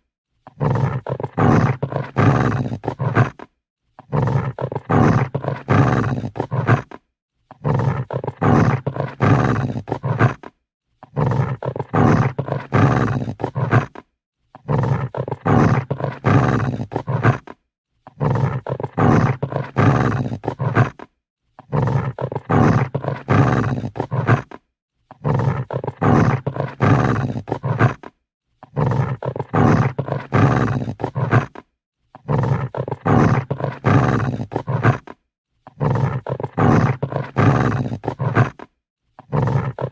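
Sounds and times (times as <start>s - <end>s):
dog growling: 0.5s - 39.9s.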